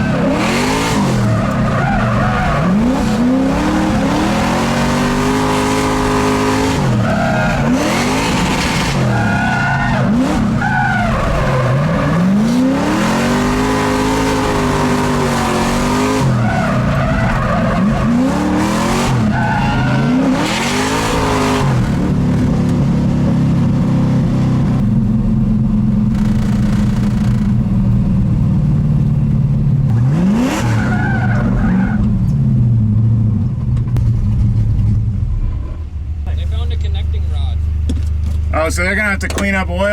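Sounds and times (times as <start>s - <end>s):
tyres squealing and skidding: 0.0s - 22.0s, 30.1s - 32.2s
car engine revving: 0.0s - 39.6s.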